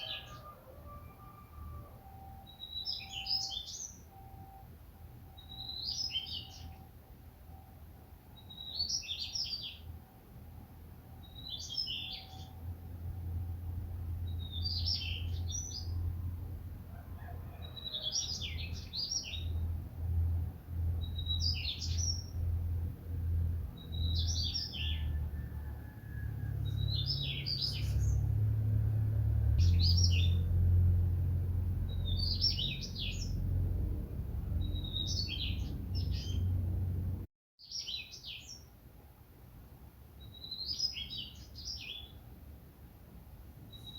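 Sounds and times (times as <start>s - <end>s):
songbird singing: 0.0s - 10.0s, 11.1s - 38.7s, 40.2s - 42.2s, 43.7s - 43.9s
low rumble: 25.1s - 37.3s.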